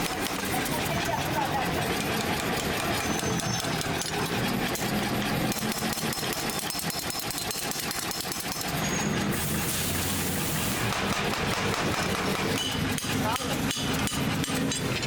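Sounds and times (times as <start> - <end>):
loud hiss: 9.2 - 11.2.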